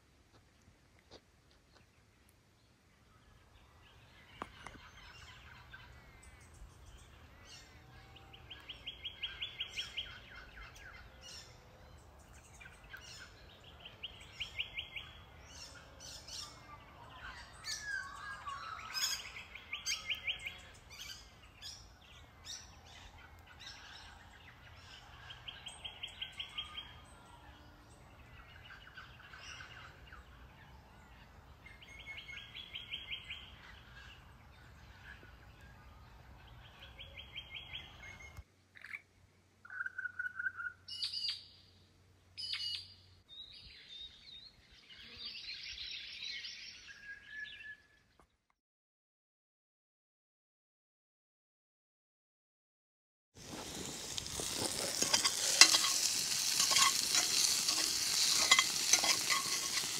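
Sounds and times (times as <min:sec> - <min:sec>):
bird chirps: 0:03.1 - 0:41.8, 0:42.4 - 0:48.0.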